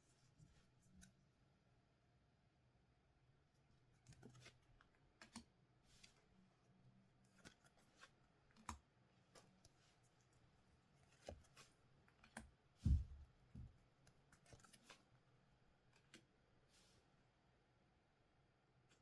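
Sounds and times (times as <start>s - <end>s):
soft thump: 12.8s - 13.7s.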